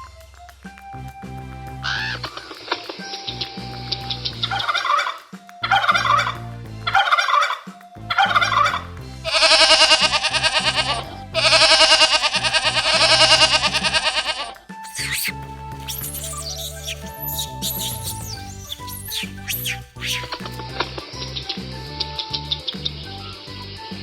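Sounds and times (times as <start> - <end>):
background music: 0.0 - 24.0
bird calling: 14.8 - 20.6.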